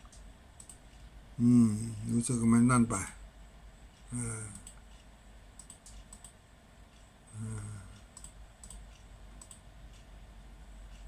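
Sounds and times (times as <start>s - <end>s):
man humming low: 1.4s - 2.1s, 4.1s - 4.6s, 7.3s - 8.0s
mouse and keyboard clicks: 5.6s - 6.4s, 8.2s - 9.6s.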